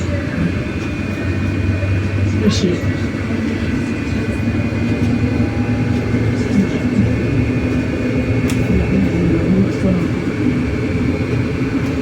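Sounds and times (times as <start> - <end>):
bus ride rumble: 0.0 - 12.0.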